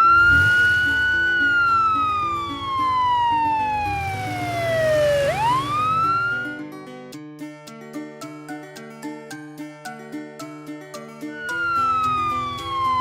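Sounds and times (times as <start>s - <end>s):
police siren wailing: 0.0s - 6.6s, 11.3s - 13.0s
light background music: 0.0s - 13.0s.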